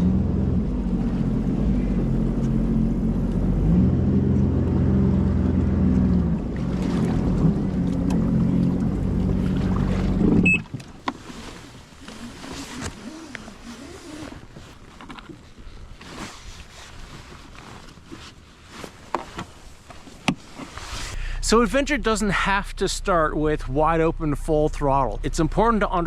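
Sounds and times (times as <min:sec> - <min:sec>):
watercraft engine running: 0:00.0 - 0:15.6.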